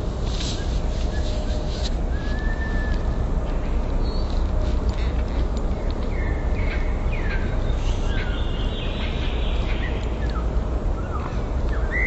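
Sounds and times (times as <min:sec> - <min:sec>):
songbirds whistling: 0:00.5 - 0:03.2, 0:06.1 - 0:12.0.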